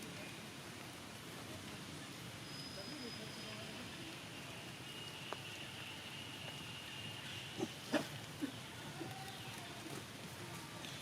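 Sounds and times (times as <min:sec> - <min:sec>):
monkeys calling: 0:07.4 - 0:09.9.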